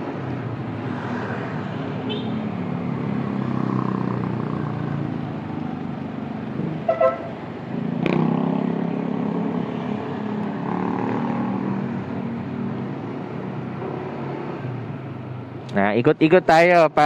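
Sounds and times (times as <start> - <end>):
traffic: 0.0 - 17.0
double horn toot: 6.9 - 7.3.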